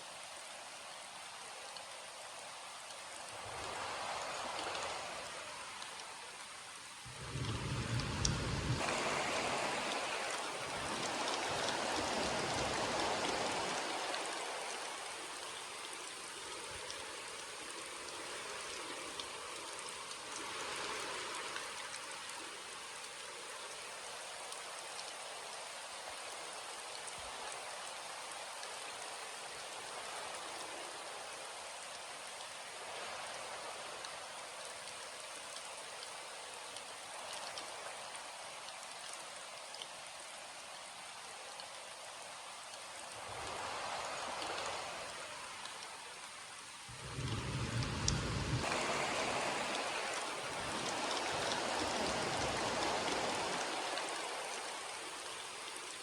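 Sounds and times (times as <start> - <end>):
steady rainfall: 0.0 - 56.0.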